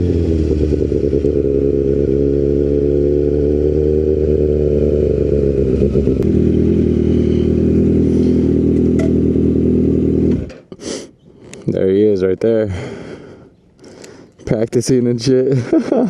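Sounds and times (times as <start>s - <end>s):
motorcycle engine running: 0.0s - 10.5s.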